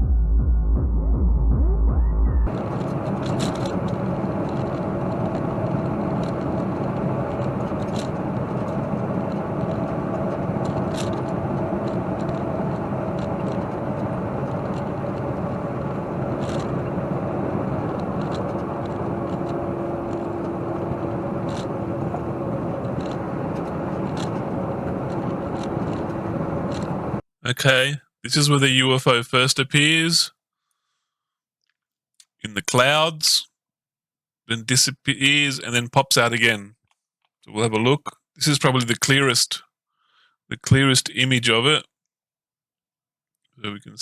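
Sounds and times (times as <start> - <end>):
truck engine and road noise: 2.4 - 27.2.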